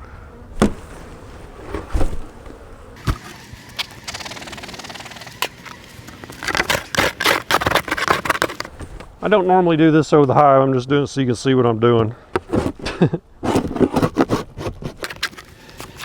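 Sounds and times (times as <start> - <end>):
sharp knocks on hive: 0.6 - 0.8
hive tool scraping comb: 3.0 - 8.8, 13.5 - 16.0.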